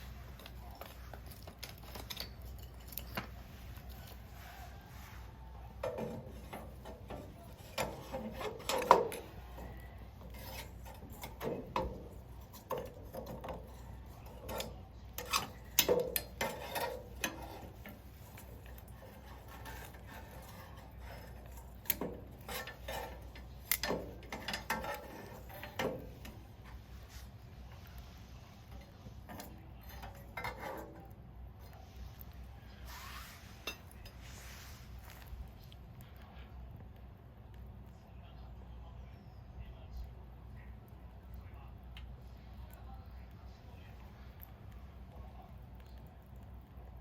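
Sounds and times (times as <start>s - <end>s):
firewood knocking against metal: 5.8s - 26.8s.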